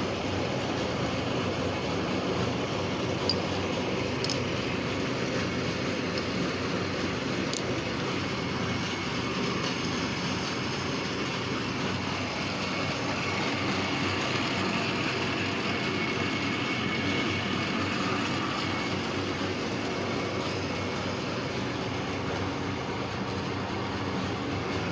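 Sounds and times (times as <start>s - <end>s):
lathe humming: 0.0s - 24.9s.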